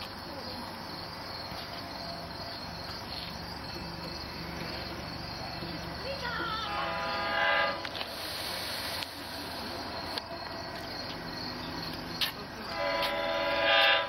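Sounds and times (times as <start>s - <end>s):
crickets chirping: 0.0s - 14.0s
locomotive horn blasts: 6.6s - 7.9s, 12.7s - 14.0s.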